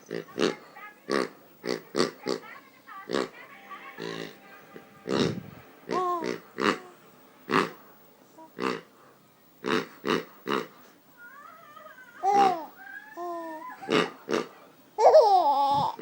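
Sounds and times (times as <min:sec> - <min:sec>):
person imitating pig oinks: 0:05.1 - 0:06.9.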